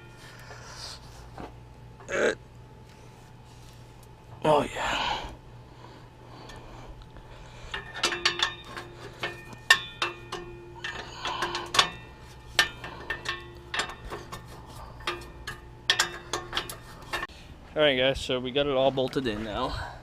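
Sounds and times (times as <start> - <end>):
metal tools clinking: 7.6 - 17.3.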